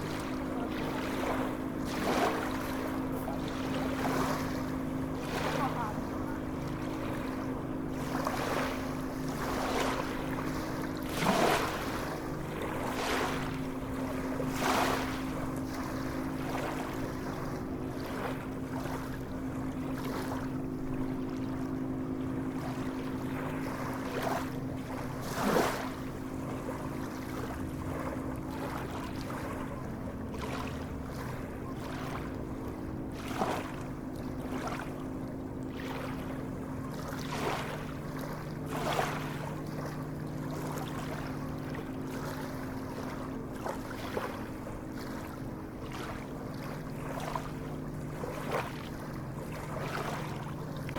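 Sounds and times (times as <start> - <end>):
sea waves lapping and splashing: 0.0 - 50.9
steady low hum: 0.0 - 50.9.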